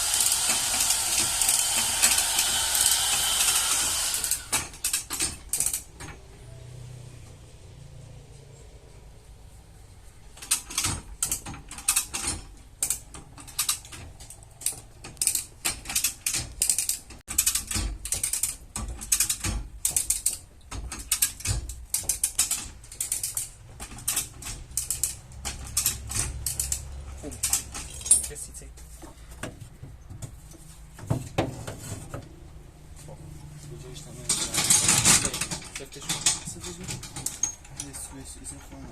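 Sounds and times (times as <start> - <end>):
metallic clicks of bodywork tools: 4.2 - 6.3, 10.3 - 28.7, 34.3 - 38.9.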